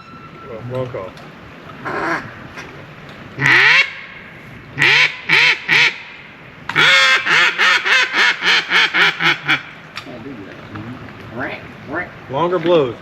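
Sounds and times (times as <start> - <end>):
duck call quacks: 1.8 - 2.4, 3.4 - 4.1, 4.8 - 6.1, 6.8 - 9.7.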